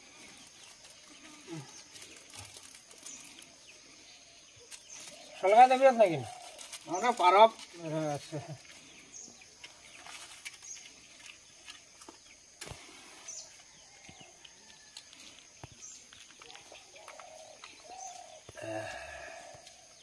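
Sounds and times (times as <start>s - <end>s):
faint outdoor ambience: 0.0s - 20.0s
bird chirping: 15.6s - 20.0s.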